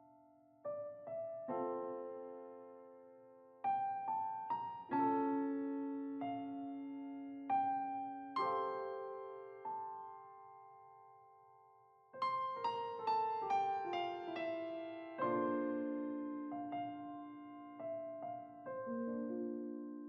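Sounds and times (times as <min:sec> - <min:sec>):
gentle solo piano: 0:00.0 - 0:20.0.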